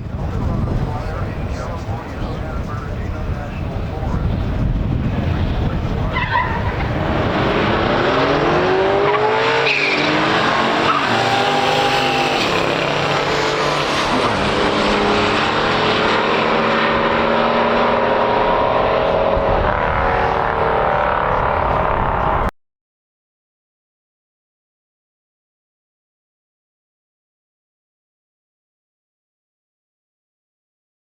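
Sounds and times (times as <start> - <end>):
race cars accelerating hard: 0.2 - 22.5.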